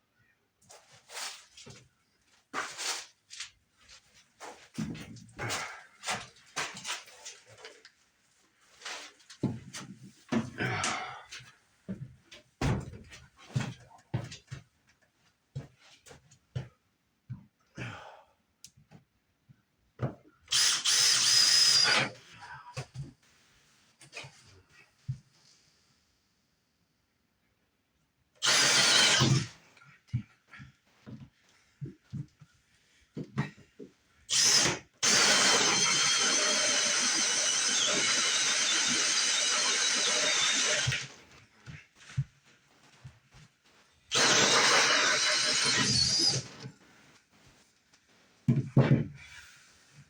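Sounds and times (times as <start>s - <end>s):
power drill motor whining: 20.5s - 22.1s, 28.4s - 29.5s, 34.3s - 41.2s, 44.1s - 46.7s.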